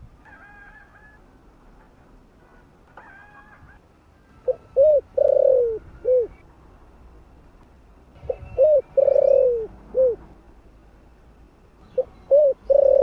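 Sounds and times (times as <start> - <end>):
dove cooing: 4.3 - 6.4, 8.2 - 10.3, 12.0 - 13.0
small birds chirping: 8.2 - 10.2, 11.3 - 13.0.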